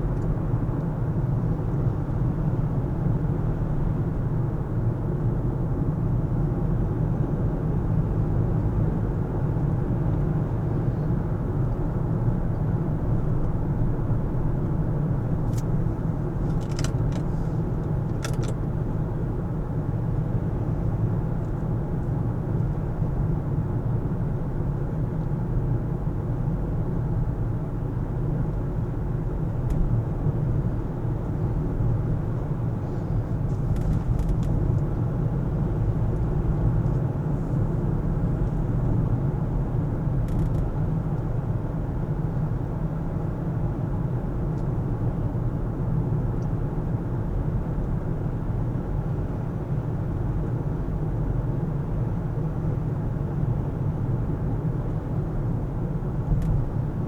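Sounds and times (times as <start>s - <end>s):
car engine rumble: 0.0s - 57.0s
road noise: 29.3s - 40.7s.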